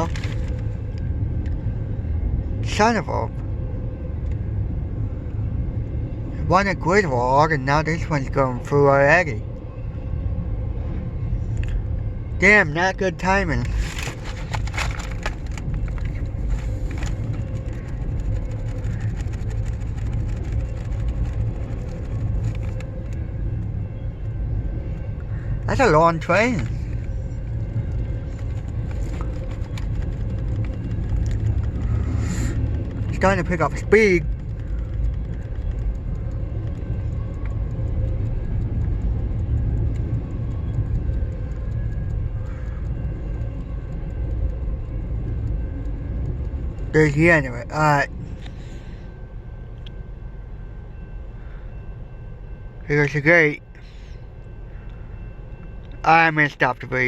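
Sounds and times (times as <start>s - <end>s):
freight train rumbling past: 0.0s - 57.0s
faint steady tone: 20.4s - 57.0s.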